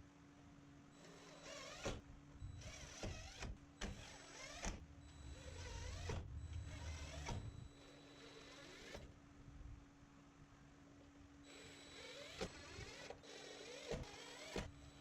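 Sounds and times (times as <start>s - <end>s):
power drill motor: 1.0s - 9.1s, 11.6s - 14.9s.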